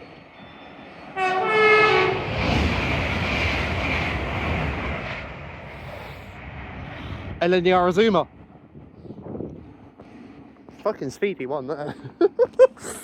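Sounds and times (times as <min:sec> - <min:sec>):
train rushing past: 0:00.0 - 0:11.5
train horn blast: 0:01.2 - 0:02.3.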